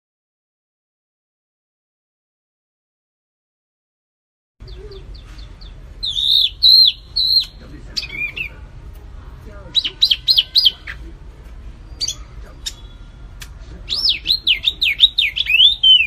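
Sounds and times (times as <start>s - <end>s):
bird chirps: 4.6s - 8.6s, 9.7s - 11.1s, 11.8s - 13.3s, 13.9s - 16.0s
songbird whistled song: 4.6s - 8.6s, 9.7s - 11.1s, 11.9s - 16.0s.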